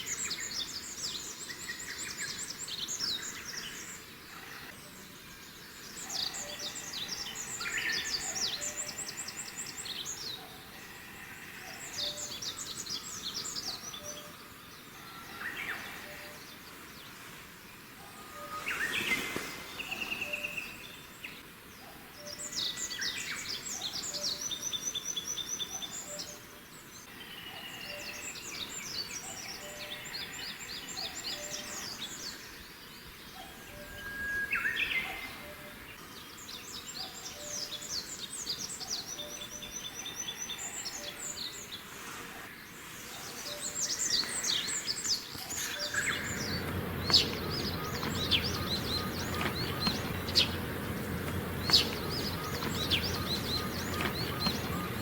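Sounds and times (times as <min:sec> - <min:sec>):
songbird trilling and chirping: 0:43.5 - 0:55.0.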